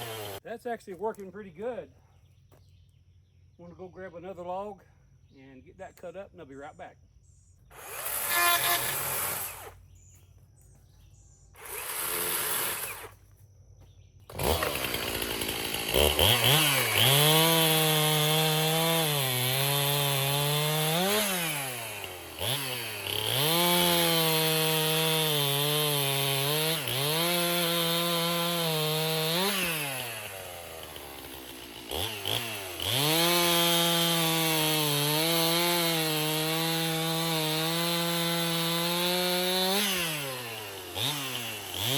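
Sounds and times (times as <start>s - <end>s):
chainsaw cutting a log: 0.0s - 0.4s, 7.7s - 9.8s, 11.6s - 13.2s, 14.3s - 41.9s.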